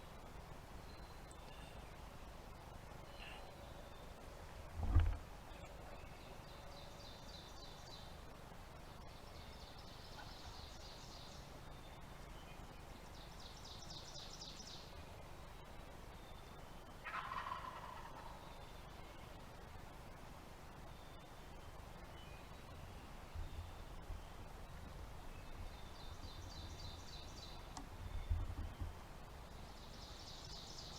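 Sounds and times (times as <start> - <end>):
turkey gobbling: 17.0 - 18.4.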